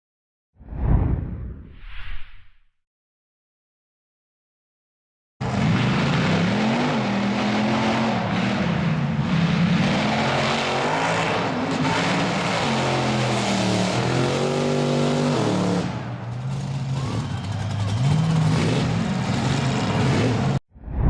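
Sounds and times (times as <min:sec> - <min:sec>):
truck engine revving hard: 0:05.4 - 0:20.6.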